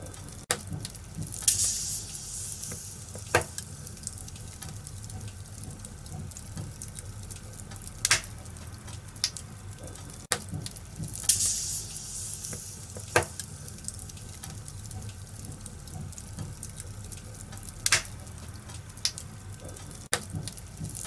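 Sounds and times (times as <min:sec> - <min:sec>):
wood fire crackling: 0:00.0 - 0:21.0
sharp fire pops: 0:00.5 - 0:05.9, 0:06.6 - 0:09.5, 0:10.3 - 0:15.8, 0:17.7 - 0:18.3.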